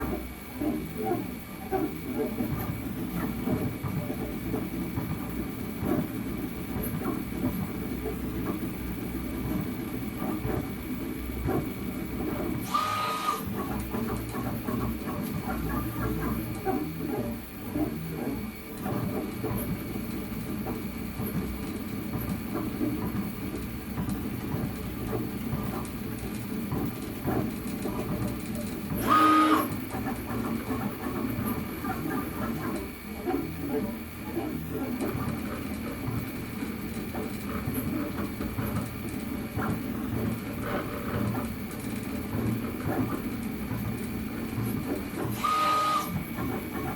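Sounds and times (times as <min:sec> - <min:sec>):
steady fan whine: 0:00.0 - 0:46.9
stepper motors whirring: 0:12.6 - 0:14.1, 0:29.0 - 0:29.8, 0:45.2 - 0:46.9.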